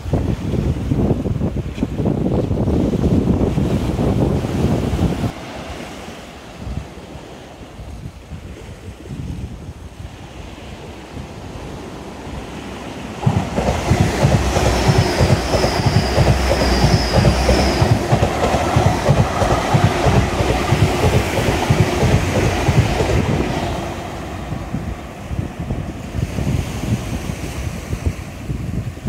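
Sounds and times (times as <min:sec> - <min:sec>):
train wheels clattering over rails: 0:12.8 - 0:25.5
high wheel squeal: 0:13.3 - 0:20.4.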